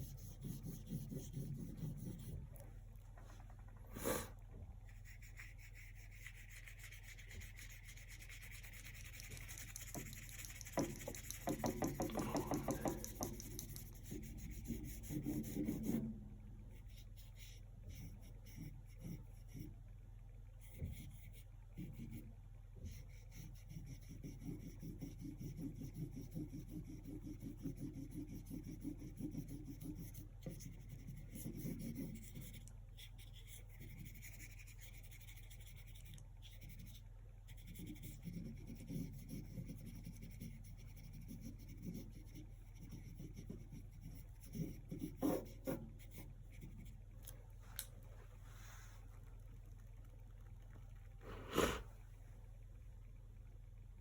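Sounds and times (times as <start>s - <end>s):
paintbrush scrubbing on canvas: 0.0s - 2.6s, 4.9s - 16.1s, 51.2s - 52.0s.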